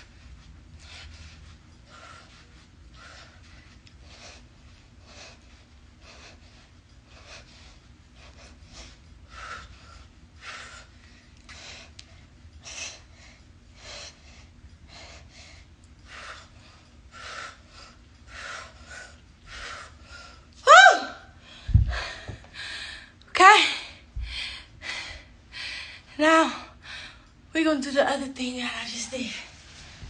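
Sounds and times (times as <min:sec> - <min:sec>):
woman rising vocal cry: 0:20.6 - 0:21.3.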